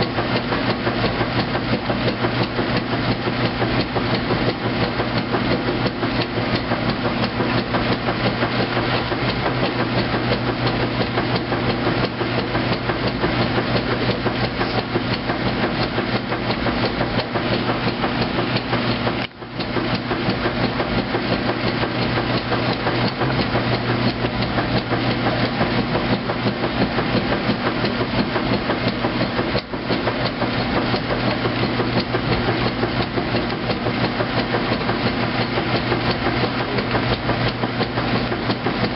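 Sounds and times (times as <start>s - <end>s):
washing machine running: 0.0s - 38.9s.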